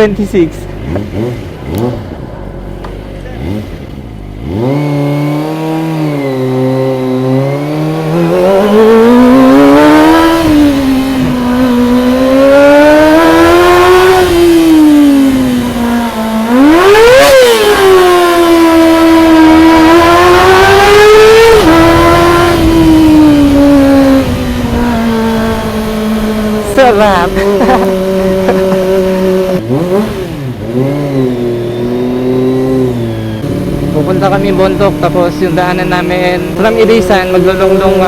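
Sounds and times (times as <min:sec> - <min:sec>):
motorcycle engine revving through gears: 0:00.0 - 0:38.0.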